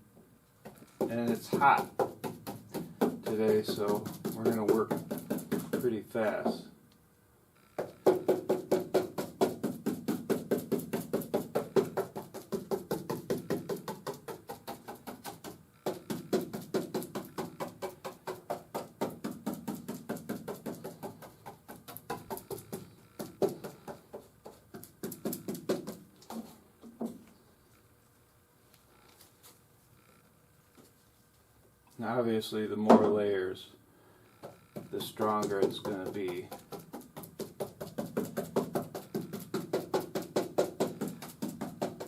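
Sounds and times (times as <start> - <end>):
tapping strokes working resin: 0.6 - 6.7, 7.7 - 27.2, 34.3 - 42.0.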